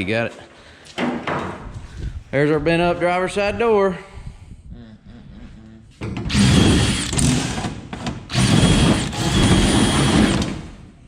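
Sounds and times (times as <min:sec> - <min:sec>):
power drill running: 0:06.3 - 0:10.8.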